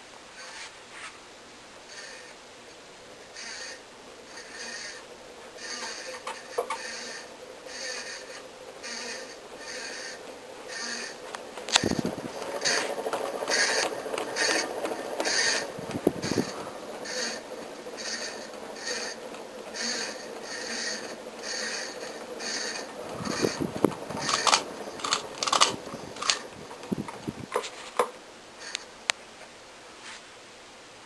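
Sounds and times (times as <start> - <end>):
ceiling fan scraping swish: 3.3 - 28.0
sharp clicks and knocks: 11.2 - 28.2.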